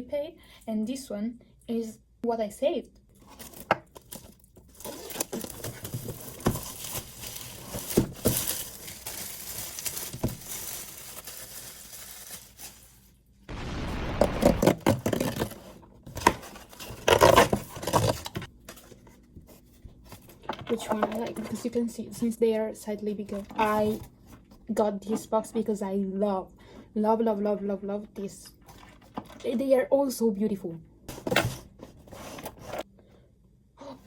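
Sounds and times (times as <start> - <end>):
cardboard and plastic scraping: 3.2 - 12.8, 14.4 - 21.8, 31.1 - 32.9.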